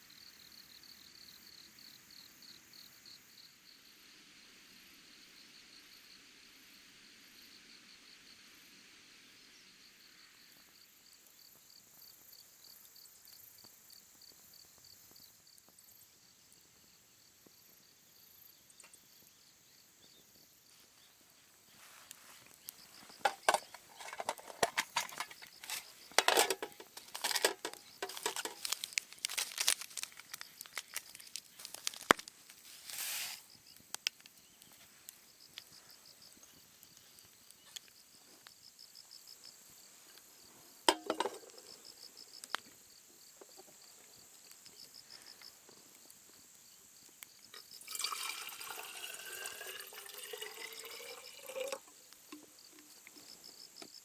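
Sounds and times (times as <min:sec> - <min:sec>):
insects chirping: 0:00.0 - 0:54.0
clinks and knocks of handling: 0:23.0 - 0:32.3, 0:40.9 - 0:41.7
liquid poured into container: 0:47.6 - 0:52.4.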